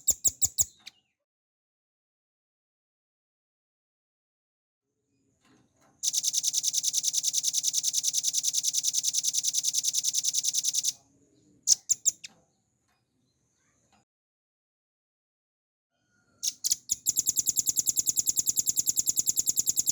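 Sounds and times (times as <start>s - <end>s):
bird high rapid trill: 16.4s - 19.9s.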